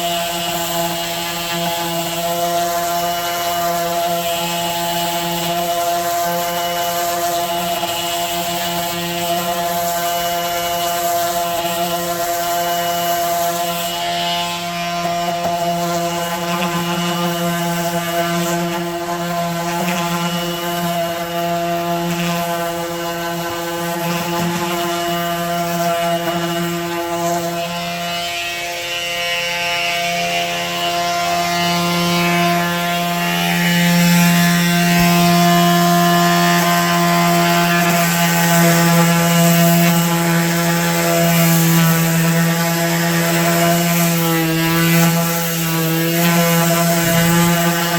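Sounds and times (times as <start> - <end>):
electric sander humming: 0.0 - 47.9.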